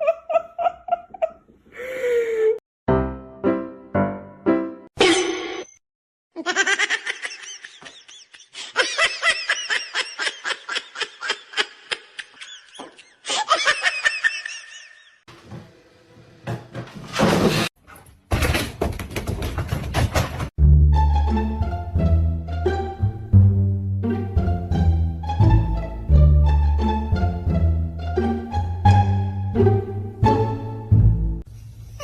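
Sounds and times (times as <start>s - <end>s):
person laughing: 0.0s - 2.6s, 6.4s - 15.2s.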